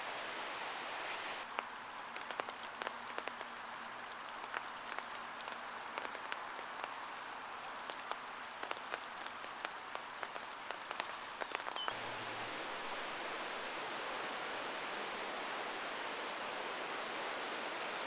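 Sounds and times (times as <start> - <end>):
heavy rain hissing: 0.0 - 1.4, 11.3 - 18.0
raindrops tapping close by: 1.3 - 13.5.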